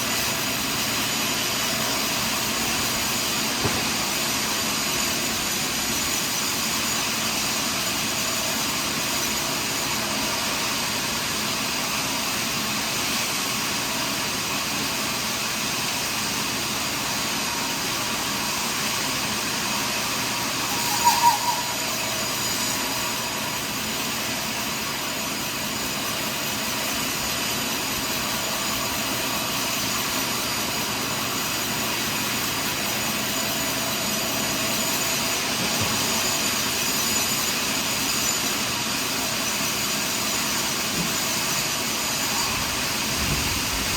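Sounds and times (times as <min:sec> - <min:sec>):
sawmill saw whine and hiss: 0:00.0 - 0:43.9
sharp knocks: 0:03.6 - 0:04.1.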